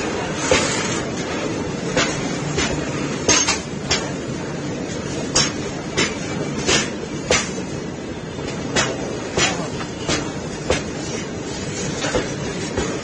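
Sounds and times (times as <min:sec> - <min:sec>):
metal wheel clanks: 0:01.2 - 0:04.2.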